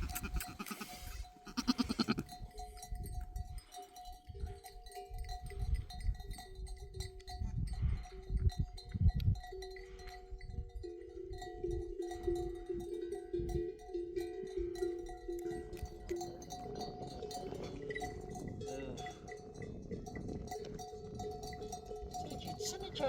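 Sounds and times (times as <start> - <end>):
goat bleating: 0.0 - 2.3
livestock bells: 0.0 - 23.0.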